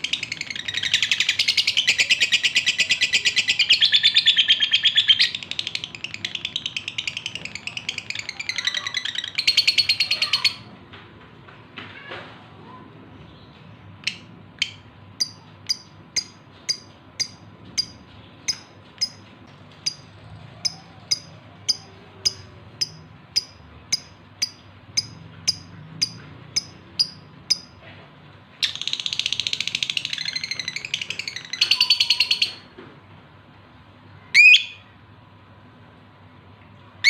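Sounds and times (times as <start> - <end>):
bird chattering warble: 0.0 - 10.7, 14.0 - 19.2, 19.8 - 27.8, 28.6 - 32.7
bird high chirps: 0.0 - 10.7, 19.8 - 27.7, 28.6 - 32.7, 34.2 - 35.0.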